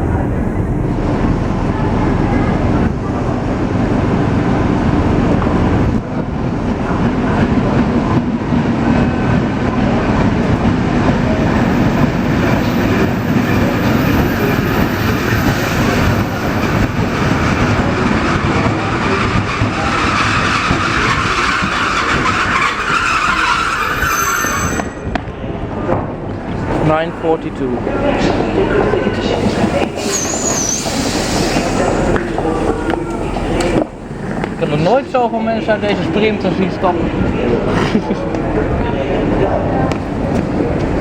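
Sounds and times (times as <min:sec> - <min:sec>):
train wheels rumbling on track: 0:00.0 - 0:41.0
train brakes squealing: 0:11.6 - 0:25.2, 0:29.4 - 0:32.2.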